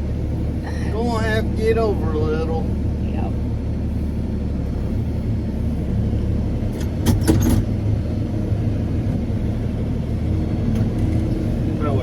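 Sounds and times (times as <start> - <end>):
farm vehicle engine running: 0.0 - 12.0
metallic clanks and rattles: 6.8 - 7.8.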